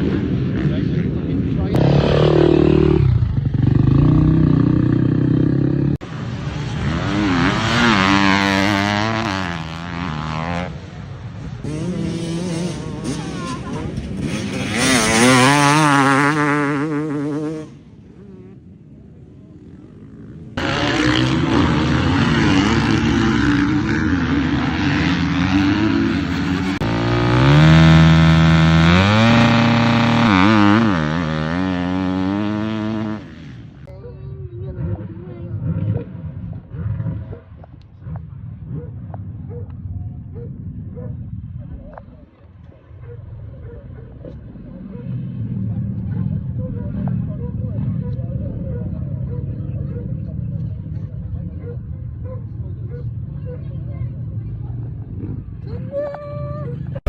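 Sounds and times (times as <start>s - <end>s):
motocross bike engines revving: 0.0s - 42.7s, 44.0s - 57.0s.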